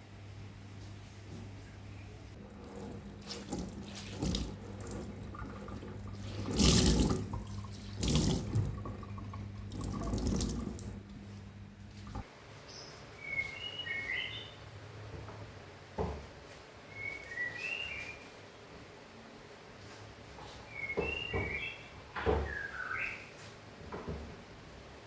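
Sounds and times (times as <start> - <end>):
steady low hum: 0.0 - 13.2
tap water running into sink: 2.4 - 11.0.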